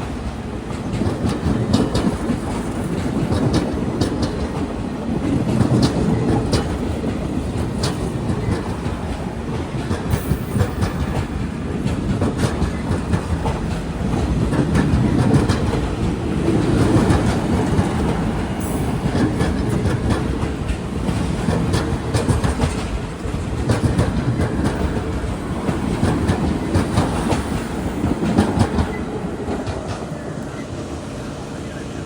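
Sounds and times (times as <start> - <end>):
wheels clicking over rail joints: 0.0 - 30.6
train rumbling past: 0.0 - 32.0.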